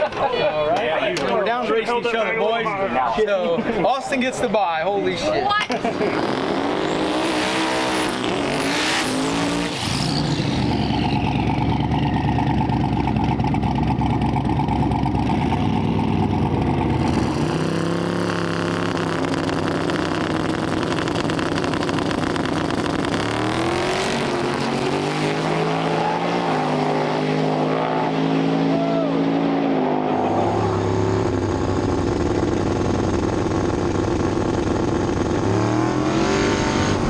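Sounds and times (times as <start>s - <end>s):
race car engines revving: 3.8s - 37.0s
high turbo squeal: 5.9s - 13.6s, 17.0s - 33.1s.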